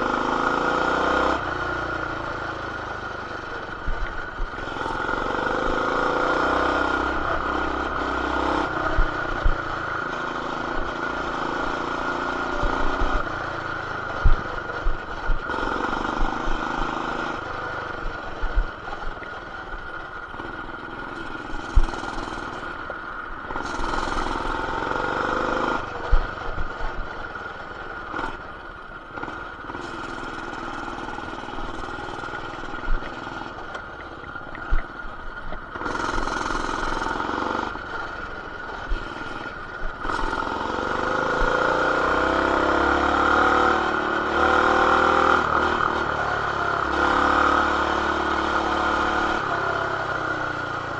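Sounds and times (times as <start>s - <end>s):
small motorbike engine revving: 0.0s - 50.9s.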